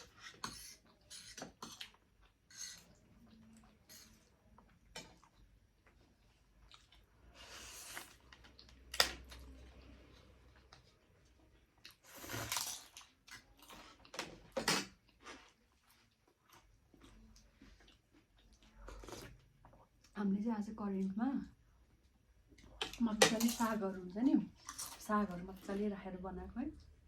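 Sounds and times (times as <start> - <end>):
person chewing: 0.0 - 9.4, 15.0 - 20.1.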